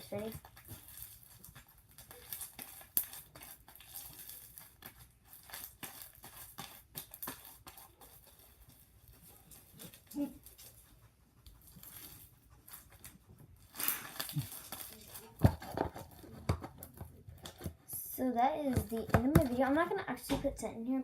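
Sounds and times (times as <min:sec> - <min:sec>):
slime squishing with clicks: 0:00.0 - 0:10.7.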